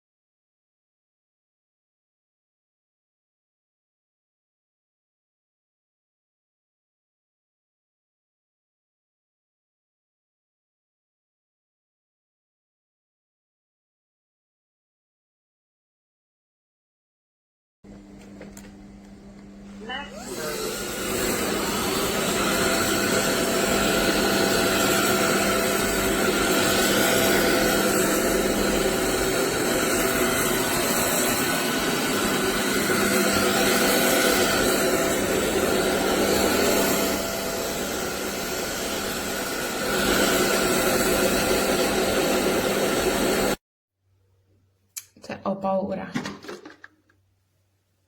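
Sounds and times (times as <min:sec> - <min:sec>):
vacuum cleaner motor whine: 0:17.9 - 0:43.6.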